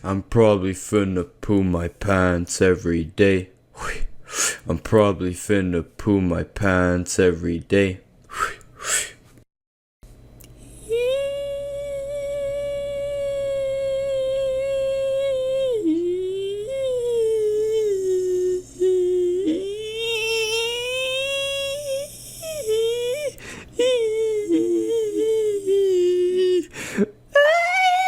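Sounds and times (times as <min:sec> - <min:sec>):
person humming: 0:03.8 - 0:04.7, 0:10.5 - 0:28.0.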